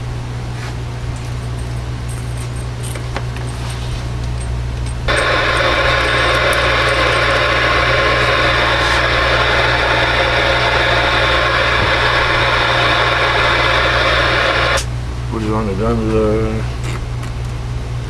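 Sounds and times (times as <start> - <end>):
low electrical hum: 0.0 - 18.0
radio static hiss: 5.1 - 14.9.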